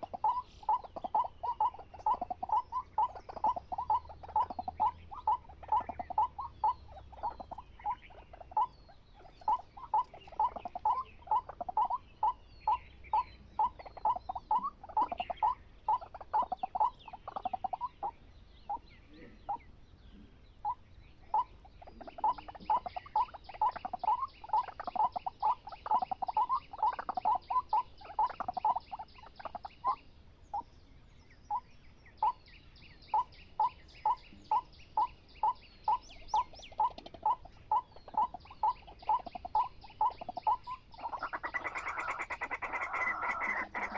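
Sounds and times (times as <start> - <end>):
croaking animal calls: 0.0 - 19.6, 20.6 - 30.0, 33.1 - 43.9.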